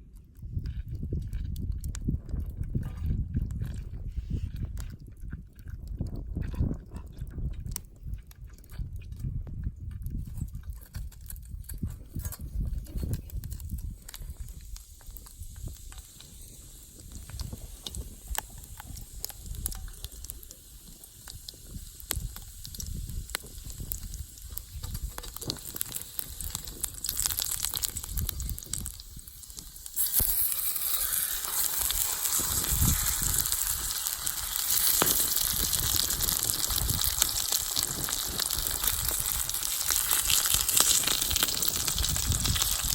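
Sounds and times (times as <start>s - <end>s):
frying sizzle in a hot pan: 12.4s - 42.9s.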